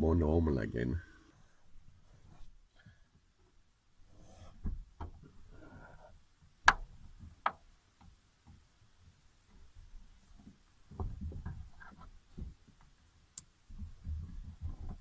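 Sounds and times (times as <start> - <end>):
sharp knocks and clicks: 6.6 - 8.7, 10.4 - 12.9.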